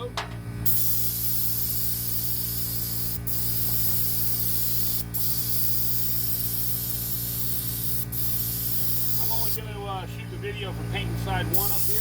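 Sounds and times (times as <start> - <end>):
steady low hum: 0.0 - 12.0
paint spray gun hissing: 0.6 - 9.6, 11.5 - 12.0.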